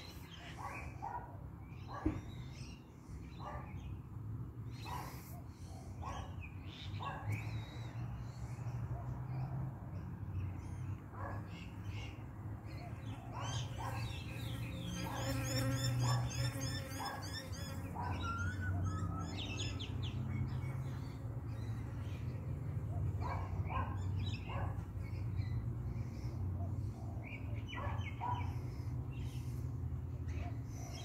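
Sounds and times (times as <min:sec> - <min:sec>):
birds chirping: 0:10.4 - 0:31.0.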